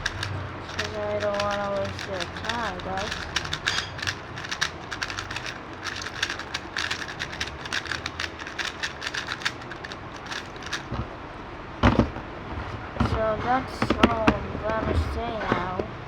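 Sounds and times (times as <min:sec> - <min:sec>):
speed cube plastic clicks: 0:00.0 - 0:11.1, 0:13.8 - 0:14.4
louder cube knock: 0:11.8 - 0:12.3.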